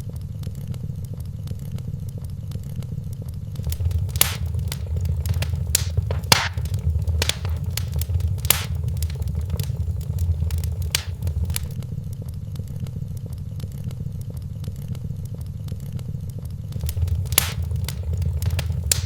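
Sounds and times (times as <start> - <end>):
fire low rumble: 3.6 - 11.8, 16.7 - 19.0
fire pops and snaps: 3.6 - 11.8, 16.7 - 19.0.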